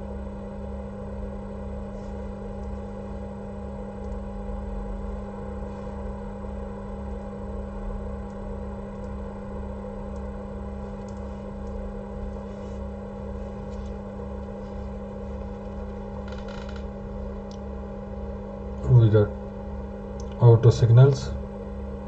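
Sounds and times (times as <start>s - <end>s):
electrical hum: 0.0s - 22.0s
soft rustle: 12.3s - 14.0s.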